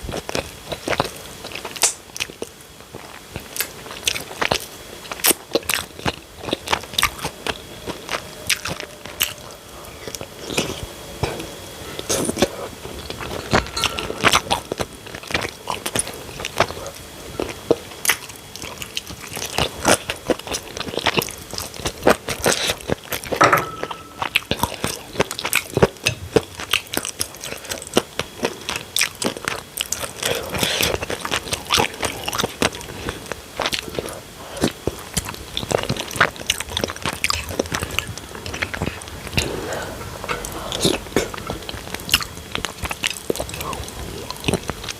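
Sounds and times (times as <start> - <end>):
biting and chewing crunches: 24.2 - 44.9.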